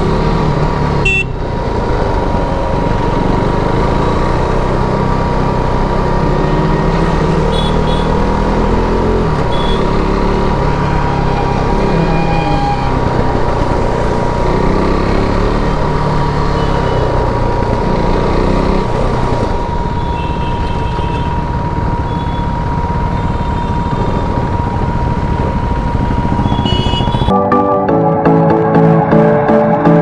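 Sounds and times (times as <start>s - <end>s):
motorcycle engine running: 0.0s - 27.3s
wind and road noise: 0.0s - 27.3s.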